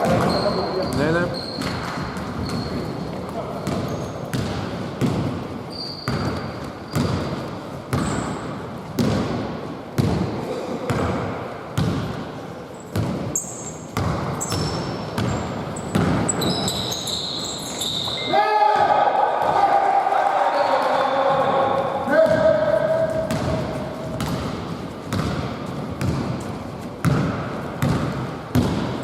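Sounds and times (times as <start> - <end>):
sneaker squeaks: 0.0 - 4.6, 5.6 - 8.6, 12.7 - 18.4
basketball dribbling indoors: 0.0 - 19.6, 21.7 - 29.0.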